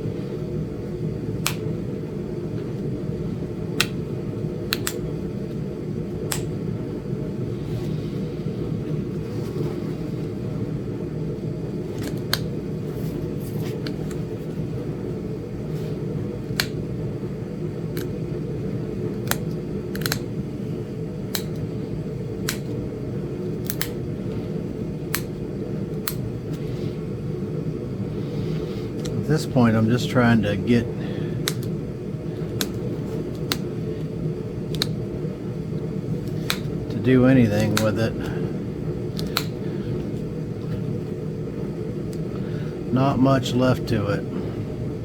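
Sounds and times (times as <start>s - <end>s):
steady low hum: 0.0s - 45.0s
stone being knapped clicks: 3.8s - 4.0s, 4.7s - 5.1s, 6.3s - 6.5s, 12.0s - 12.5s, 16.5s - 16.8s, 19.1s - 20.3s, 21.3s - 21.7s, 22.4s - 22.8s, 23.6s - 24.0s, 25.1s - 25.4s, 31.4s - 31.8s, 32.5s - 33.7s, 34.7s - 35.0s, 36.2s - 36.8s, 39.2s - 39.6s.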